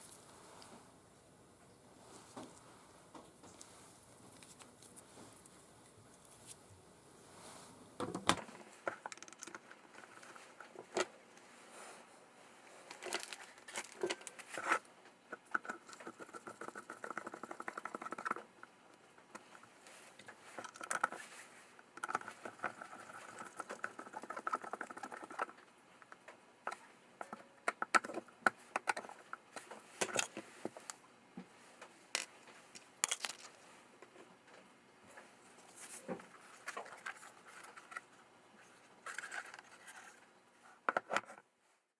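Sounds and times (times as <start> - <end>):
rapid scratching or rattling: 15.4 - 18.7, 20.4 - 25.7.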